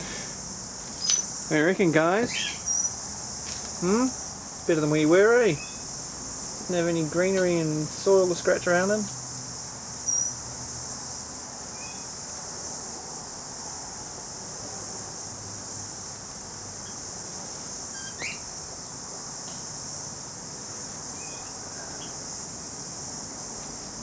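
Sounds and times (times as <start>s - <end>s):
insects droning: 0.0s - 24.0s
faint bird chirps: 17.9s - 18.5s, 21.2s - 22.2s.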